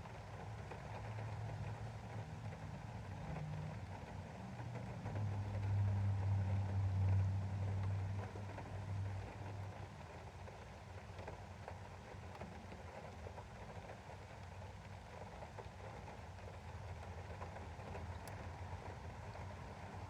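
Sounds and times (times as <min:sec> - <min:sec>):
rain pattering on a window: 0:00.0 - 0:20.0.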